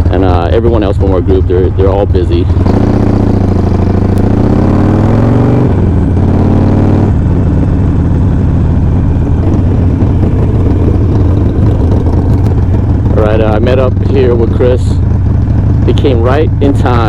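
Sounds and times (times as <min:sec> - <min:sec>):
motorcycle engine accelerating: 0:00.0 - 0:17.0
wind rush on microphone: 0:07.0 - 0:14.4.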